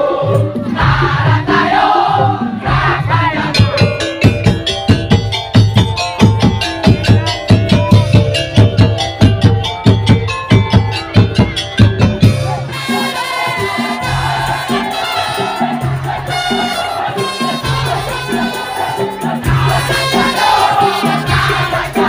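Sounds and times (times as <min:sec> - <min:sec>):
held melodic tones: 0:00.3 - 0:13.3
rapid driving drum strikes: 0:00.3 - 0:22.0.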